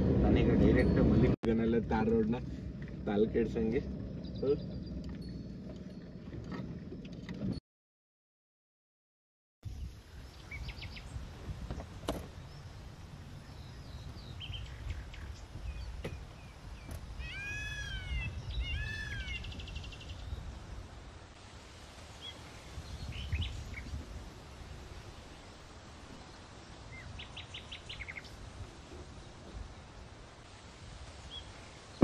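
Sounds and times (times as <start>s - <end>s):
low steady rumble: 0.0s - 7.6s
birds calling: 13.4s - 20.6s, 25.4s - 30.2s
bird trill: 17.2s - 20.4s.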